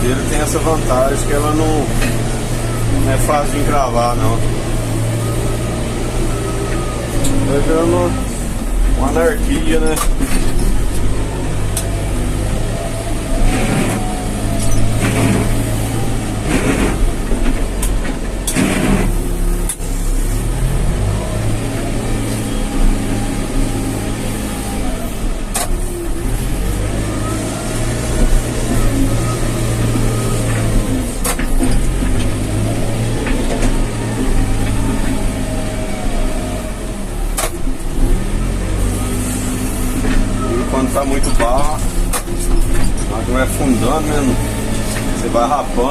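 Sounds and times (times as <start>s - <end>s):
diesel engine working under load: 0.0s - 45.9s.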